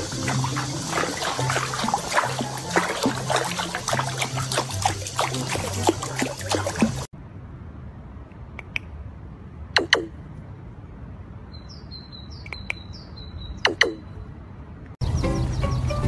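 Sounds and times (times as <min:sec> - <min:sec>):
raven knocking calls: 0:09.8 - 0:10.2, 0:13.6 - 0:14.1.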